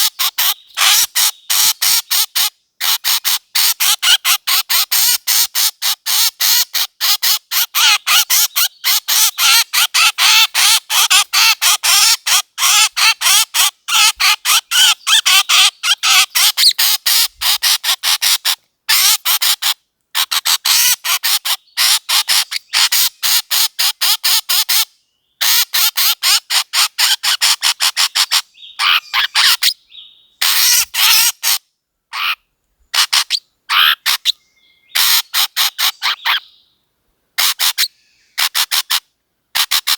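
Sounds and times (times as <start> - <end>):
bird call lure squawking chirps: 7.5 - 19.2.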